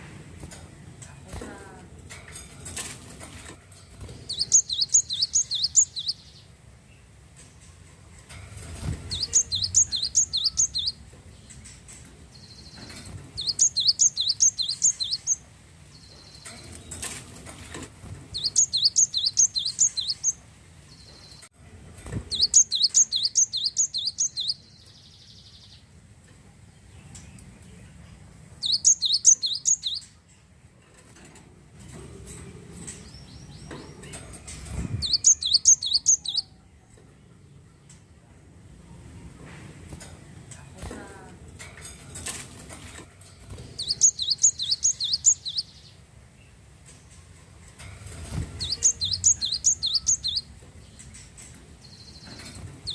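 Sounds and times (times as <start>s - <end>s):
bird singing sharp high notes: 4.3s - 6.4s, 9.1s - 11.0s, 13.4s - 15.4s, 18.4s - 20.4s, 22.3s - 25.7s, 28.6s - 30.0s, 35.0s - 36.5s, 43.8s - 45.8s, 48.6s - 50.5s.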